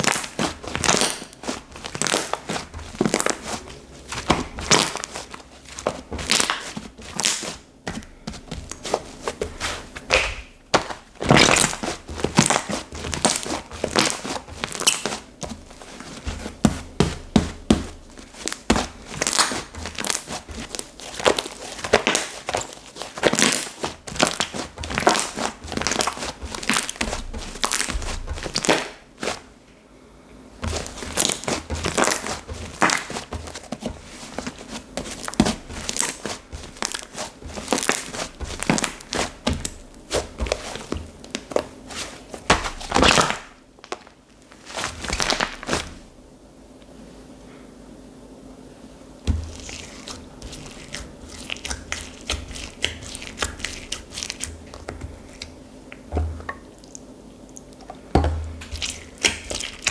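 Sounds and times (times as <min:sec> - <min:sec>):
slime crackling when squeezed: 0:11.3 - 0:15.1, 0:18.4 - 0:29.0.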